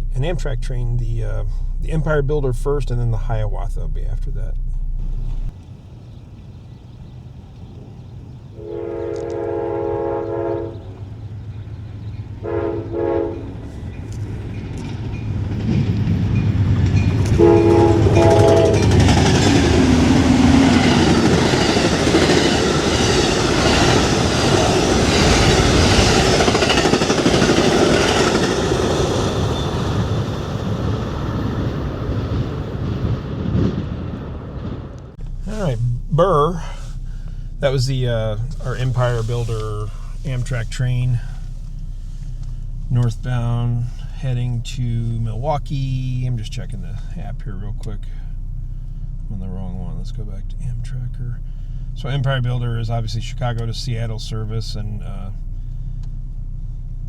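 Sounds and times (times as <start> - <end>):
passing train rumble: 0.0 - 57.0
locomotive air horn blasts: 8.6 - 11.0, 12.4 - 13.9, 17.2 - 28.8
train wheel clatter: 13.6 - 33.8.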